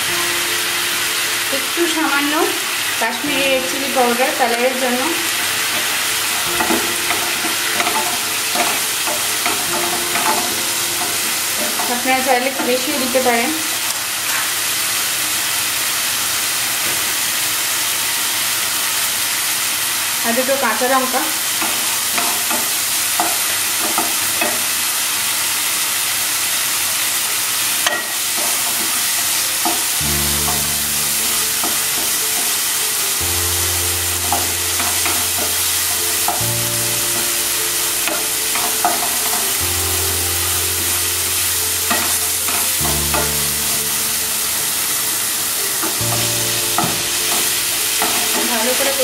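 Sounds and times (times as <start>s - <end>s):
masala sizzling in hot oil: 0.0s - 49.0s
wooden spatula scraping and tapping: 5.7s - 12.8s.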